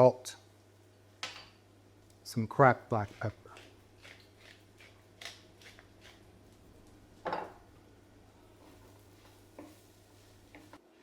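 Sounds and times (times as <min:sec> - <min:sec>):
spoon stirring bread in a frying pan: 0:08.6 - 0:10.8.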